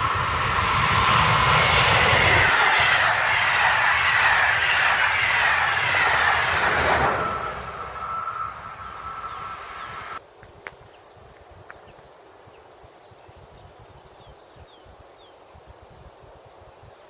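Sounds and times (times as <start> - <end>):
falling whine of train: 0.0 - 10.2
train passing at speed: 0.0 - 10.2.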